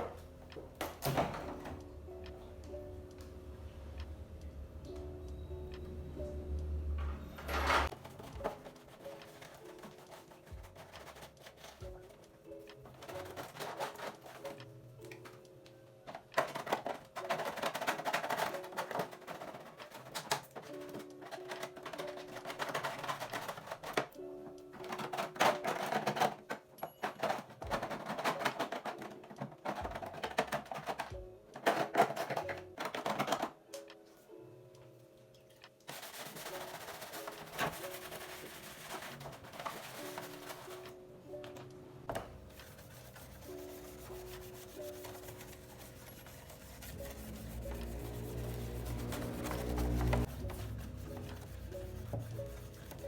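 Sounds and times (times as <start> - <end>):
background music with held notes: 0.0 - 53.0
scrubbing a surface: 8.0 - 12.0, 35.9 - 40.9, 42.5 - 53.0
small hard objects clattering: 16.1 - 24.2.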